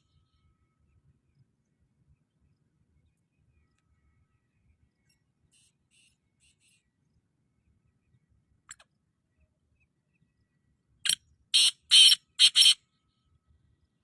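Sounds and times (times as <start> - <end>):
faint click: 3.7 - 3.9, 8.6 - 8.9
bird harsh rasping call: 11.6 - 12.8.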